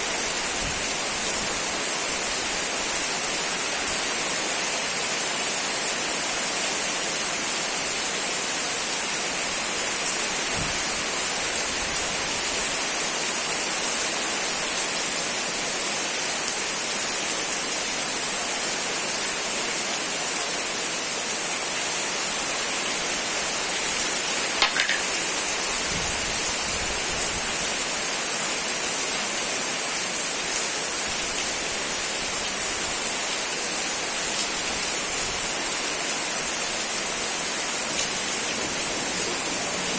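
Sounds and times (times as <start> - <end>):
rain falling: 0.0 - 39.9
sharp click: 24.6 - 25.2.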